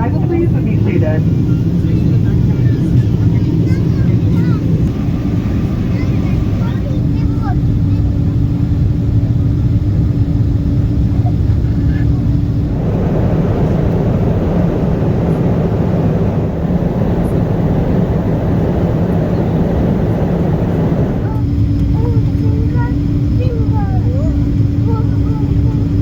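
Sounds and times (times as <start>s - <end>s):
aircraft cabin engine drone: 0.0s - 26.0s
low hum: 10.2s - 26.0s
loud rushing noise: 12.6s - 21.3s.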